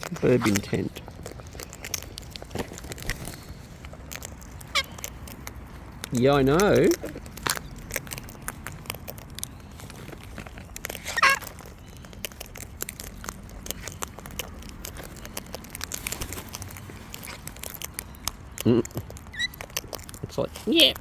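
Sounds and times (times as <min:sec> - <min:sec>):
parrot clicks and crackles: 0:00.0 - 0:21.0
parrot call: 0:04.7 - 0:05.0, 0:11.1 - 0:11.6.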